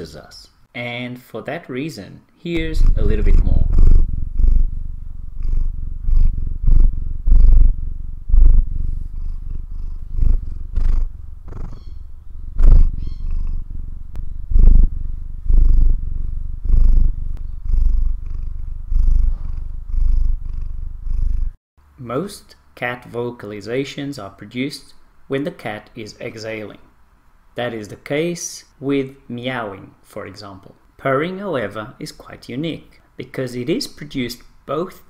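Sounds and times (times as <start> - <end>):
cat purring: 2.6 - 21.6.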